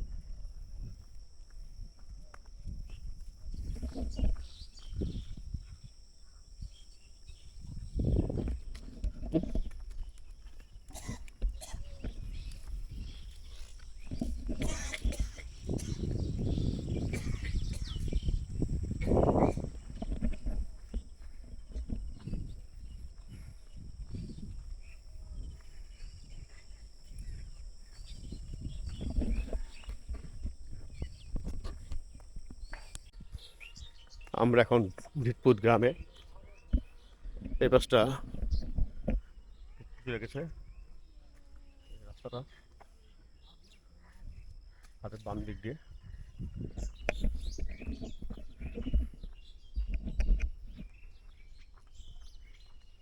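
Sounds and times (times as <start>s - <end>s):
wind rumble: 0.0s - 34.0s, 45.6s - 52.4s
bird chirps: 9.5s - 21.2s, 21.8s - 38.7s
microphone handling: 10.7s - 34.1s, 46.1s - 51.1s.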